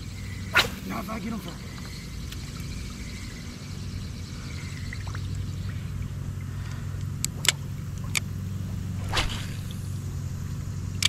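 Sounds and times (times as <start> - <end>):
small motor humming: 0.0 - 11.0
sharp clicks: 6.7 - 8.3.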